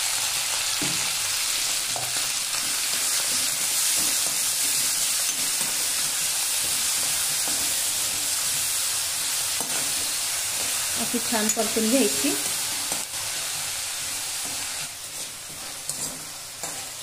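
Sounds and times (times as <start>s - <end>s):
leaves sizzling in hot oil: 0.0s - 17.0s
steel spoon stirring: 2.6s - 8.6s, 14.4s - 17.0s.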